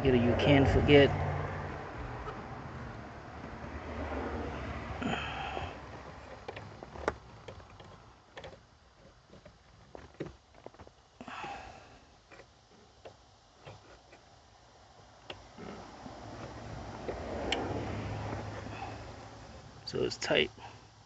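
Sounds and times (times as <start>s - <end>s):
small clicks and taps: 6.0s - 11.0s.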